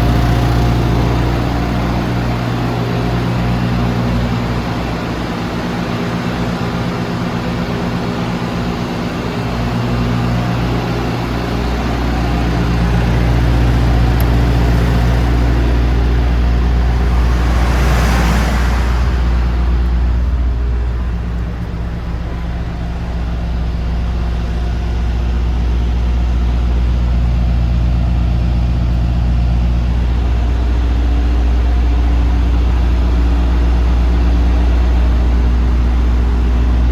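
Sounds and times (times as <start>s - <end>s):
diesel engine idling: 0.0s - 36.9s
brief rushing sound: 15.3s - 22.3s.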